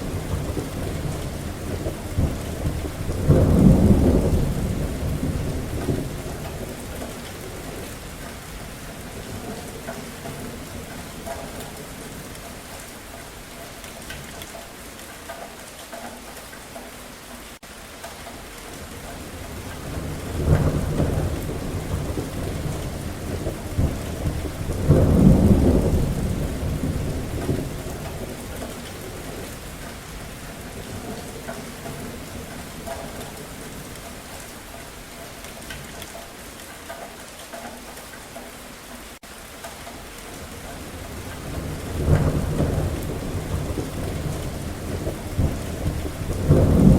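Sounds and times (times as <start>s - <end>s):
rolling thunder: 0.0s - 12.4s, 19.2s - 34.0s, 40.4s - 46.9s
steady rain: 0.0s - 46.9s.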